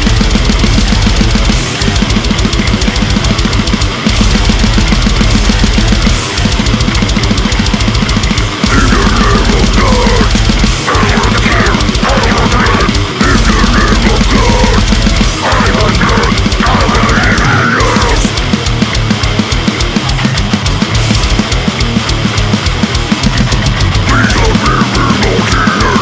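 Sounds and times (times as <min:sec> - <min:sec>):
extreme metal music: 0:00.0 - 0:26.0
wavering voice: 0:08.6 - 0:18.3, 0:24.1 - 0:26.0.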